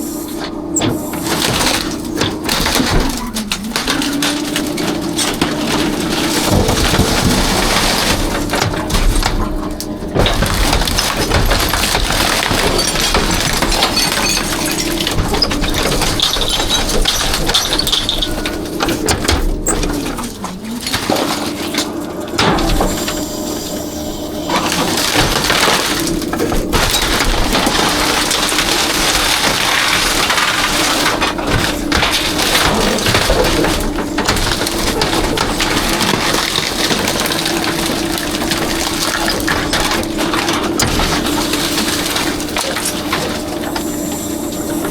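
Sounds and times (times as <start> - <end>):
truck engine and hydraulics hum: 0.0 - 13.9, 14.5 - 25.1
garbage truck compacting trash: 0.0 - 44.9
glass breaking and crunching: 1.2 - 23.5, 24.4 - 44.9.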